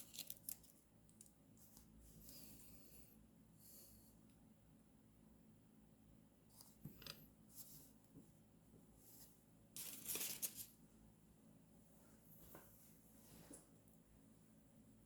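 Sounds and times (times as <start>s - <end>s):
paper rustling: 9.8s - 10.8s.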